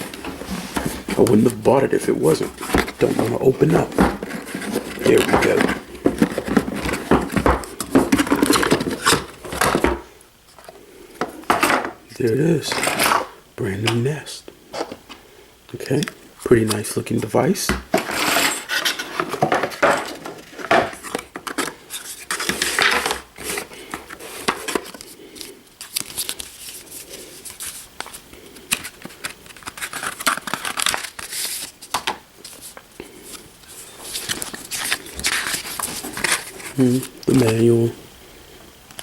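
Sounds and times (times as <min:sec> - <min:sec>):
packaging crinkling and rustling: 0:00.0 - 0:10.8, 0:17.9 - 0:37.8.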